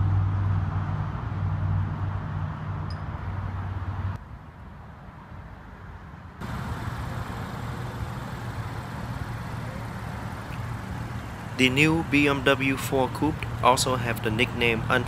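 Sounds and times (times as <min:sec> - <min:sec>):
road noise: 0:00.0 - 0:15.0
car engine idling: 0:06.4 - 0:15.0.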